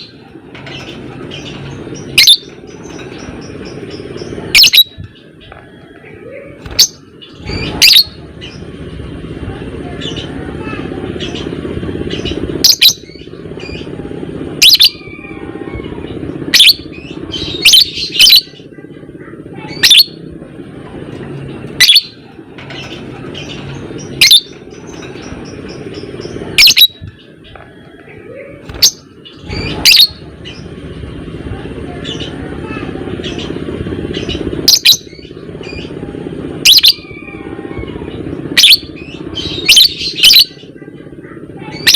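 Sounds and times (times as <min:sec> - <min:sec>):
bird chattering: 0:00.0 - 0:08.8, 0:09.9 - 0:14.0, 0:14.6 - 0:20.3, 0:21.2 - 0:30.9, 0:31.6 - 0:41.9
low hum: 0:00.0 - 0:41.7
lovebird shrill chirps: 0:26.6 - 0:27.0.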